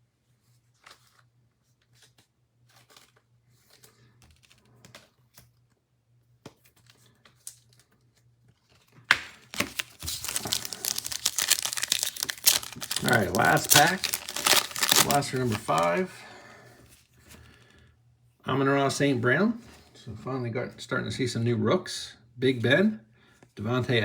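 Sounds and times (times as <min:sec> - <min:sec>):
trading cards being handled: 0:09.1 - 0:16.2
wrapper crinkling and tearing: 0:09.1 - 0:16.2.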